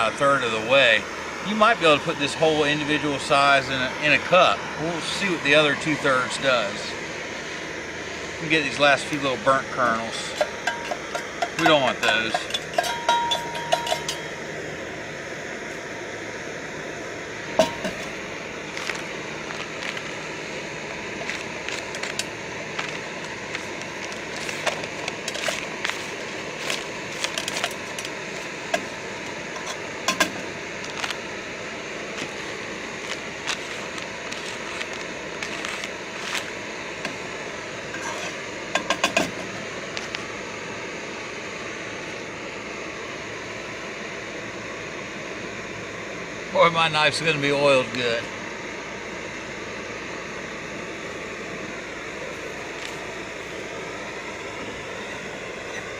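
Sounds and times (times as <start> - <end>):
gas stove burner hissing: 0.0 - 55.9
knife scraping metal cup: 10.3 - 14.3, 38.0 - 38.4.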